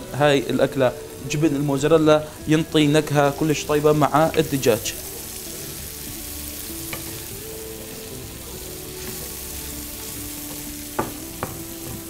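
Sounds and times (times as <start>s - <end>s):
food sizzling in a frying pan: 0.0s - 12.0s
spatula stirring in a pan: 5.2s - 12.0s
utensil tapping on pan: 10.4s - 12.0s.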